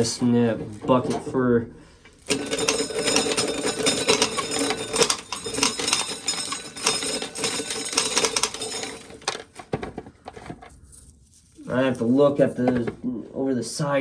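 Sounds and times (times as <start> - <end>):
corn kernels rattling into pail: 2.2 - 12.6.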